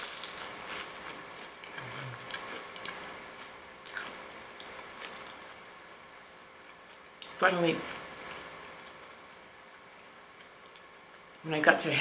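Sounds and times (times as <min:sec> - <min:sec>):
cracker crunching: 0:00.0 - 0:05.6.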